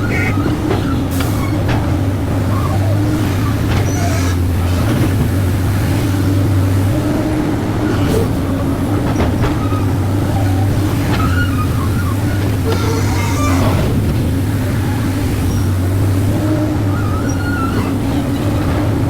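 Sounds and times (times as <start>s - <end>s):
faint squeaks and clicks: 0.0s - 5.2s, 7.8s - 14.1s, 16.5s - 19.0s
excavator diesel engine drone: 0.0s - 19.0s.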